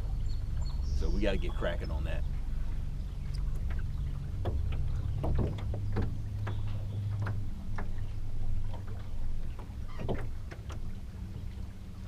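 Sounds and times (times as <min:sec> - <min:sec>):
boat motor humming: 0:00.0 - 0:12.0
light knocks: 0:04.4 - 0:08.0.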